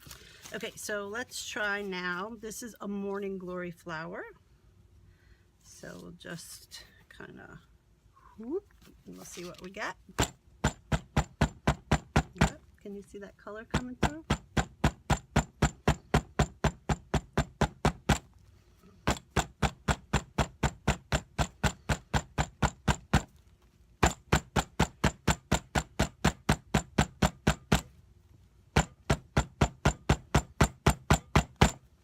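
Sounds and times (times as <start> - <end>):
hammer pounding on tabletop: 10.1 - 12.6, 13.7 - 18.3, 19.0 - 23.4, 24.0 - 27.9, 28.7 - 31.9.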